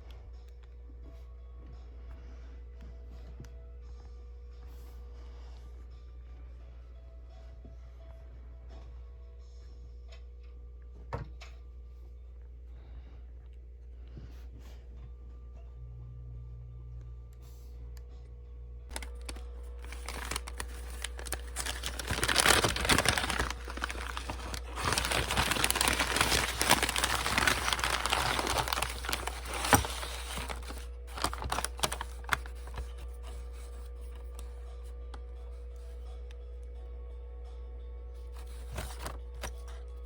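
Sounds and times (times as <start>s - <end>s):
steady low hum: 0.0s - 40.0s
packaging crinkling and tearing: 18.9s - 34.5s, 38.4s - 39.6s.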